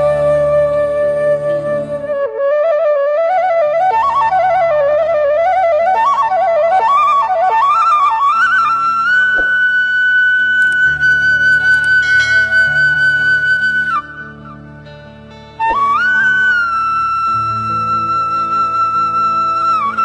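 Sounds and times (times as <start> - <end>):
flute melody: 0.0 - 20.0
low drone: 10.9 - 16.3.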